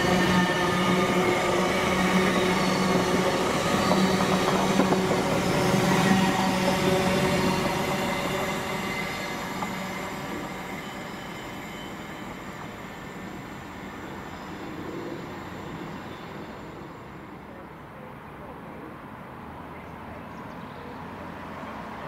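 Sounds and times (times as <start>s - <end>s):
high-speed train passing: 0.0s - 20.1s.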